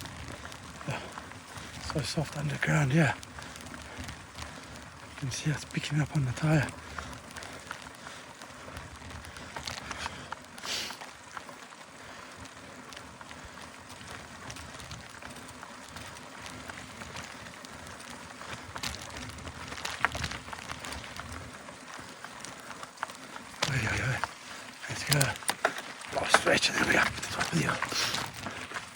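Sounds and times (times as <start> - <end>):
bike tyres rolling on dirt: 0.0 - 28.9
bike clicks and knocks: 25.0 - 28.9.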